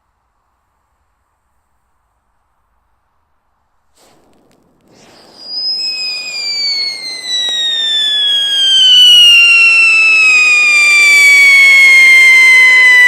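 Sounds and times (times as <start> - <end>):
firework ignition hiss: 3.8 - 13.0
firework shrill whistle: 4.0 - 13.0.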